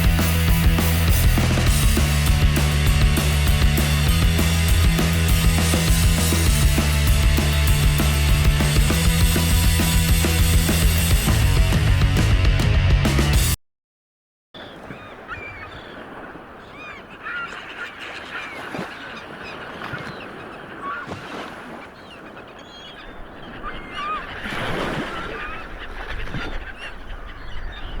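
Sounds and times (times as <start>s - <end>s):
flock of birds calling: 14.9s - 28.0s.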